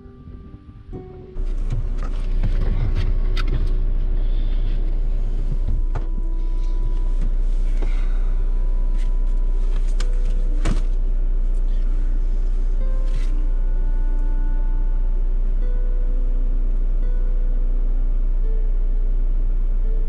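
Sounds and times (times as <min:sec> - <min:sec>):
car engine idling: 0:00.1 - 0:20.0
knocks and clicks in car: 0:01.4 - 0:03.9, 0:05.5 - 0:08.1, 0:08.9 - 0:11.0.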